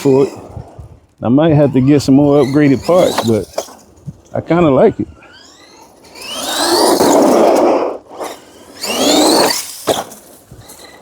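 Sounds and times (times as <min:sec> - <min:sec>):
tyres scrubbing on pavement: 0:00.0 - 0:04.6, 0:05.3 - 0:11.0
electric motor whining: 0:00.0 - 0:11.0.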